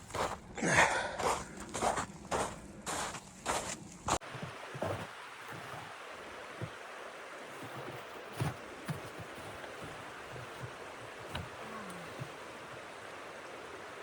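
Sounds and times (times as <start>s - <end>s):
blizzard wind hiss: 4.2s - 14.0s.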